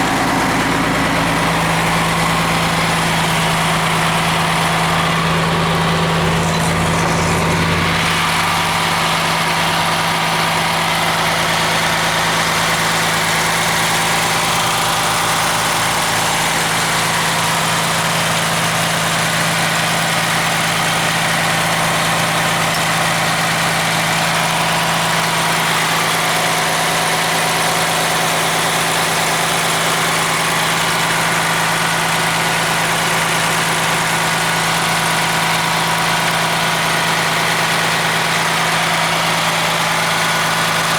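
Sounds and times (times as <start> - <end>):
diesel engine idling: 0.0 - 40.9
deeper hum: 0.6 - 10.3.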